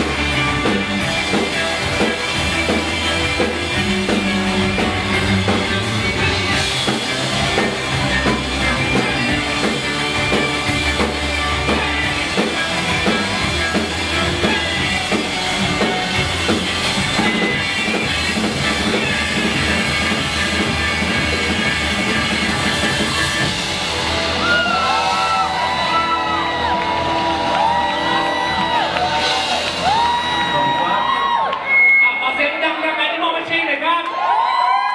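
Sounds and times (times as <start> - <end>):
live rock band playing: 0.0 - 32.6
voices shouting and whooping: 24.3 - 31.8, 33.7 - 34.9.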